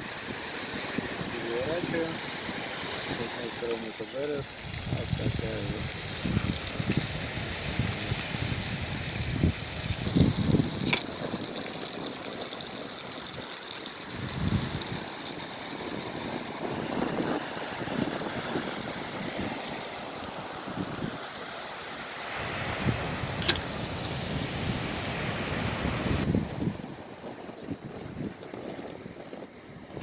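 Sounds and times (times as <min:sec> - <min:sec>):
fish sizzling in oil: 0:00.2 - 0:24.5.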